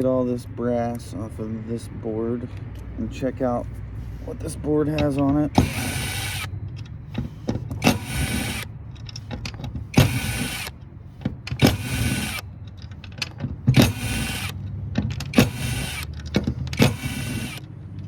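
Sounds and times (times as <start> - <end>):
metal parts clicking: 4.9 - 18.0
power drill whirring: 5.0 - 6.5, 7.1 - 8.8, 9.6 - 10.8, 11.5 - 12.6, 13.7 - 14.6, 15.2 - 17.7.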